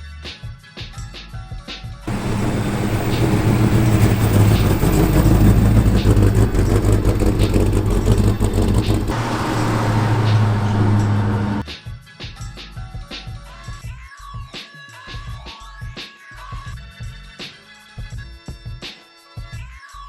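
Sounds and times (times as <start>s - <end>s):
car engine running: 2.1s - 11.6s.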